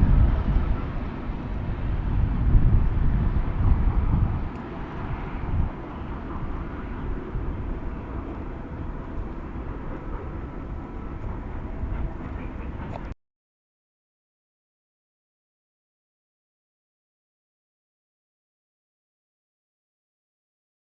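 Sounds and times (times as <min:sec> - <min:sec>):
freight train rumbling past: 0:00.0 - 0:13.2.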